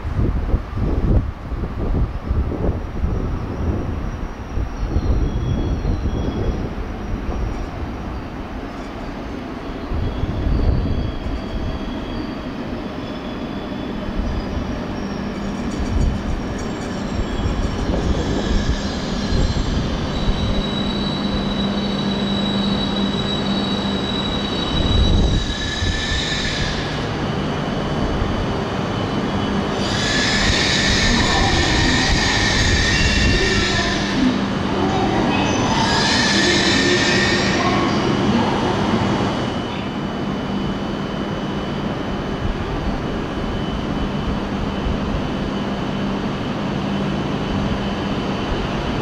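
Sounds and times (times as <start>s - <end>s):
train electric whine and rumble: 0.0s - 49.0s
hissing wheel squeal: 9.6s - 27.2s, 28.8s - 38.1s.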